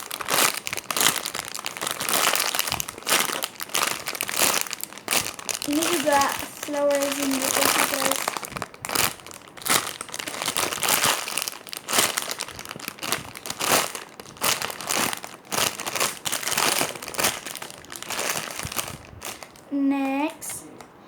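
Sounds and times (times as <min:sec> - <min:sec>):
plastic crinkling: 0:00.0 - 0:20.9.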